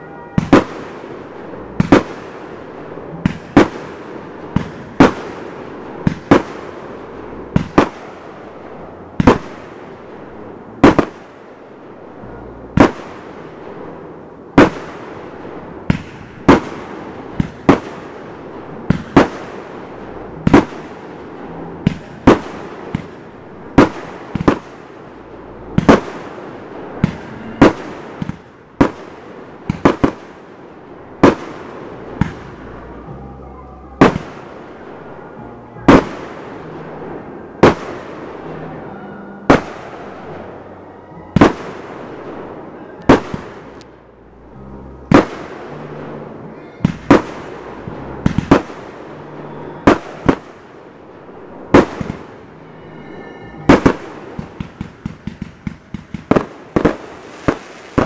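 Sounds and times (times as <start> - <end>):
fireworks bangs: 0.0 - 58.0.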